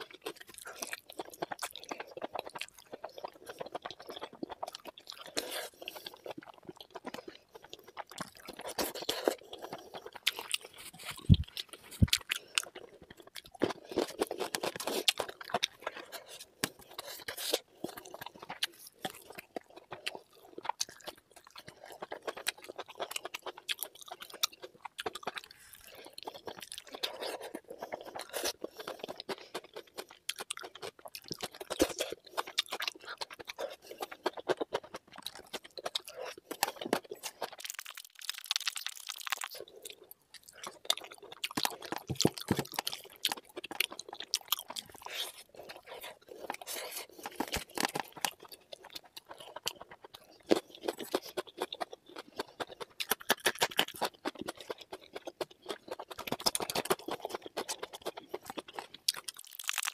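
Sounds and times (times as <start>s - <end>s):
close chewing with crunching: 0.0s - 59.9s.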